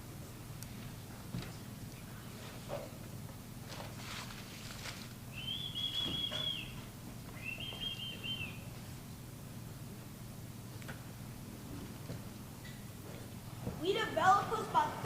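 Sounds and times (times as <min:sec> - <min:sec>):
high bird-like whistled calls: 0:05.3 - 0:08.7.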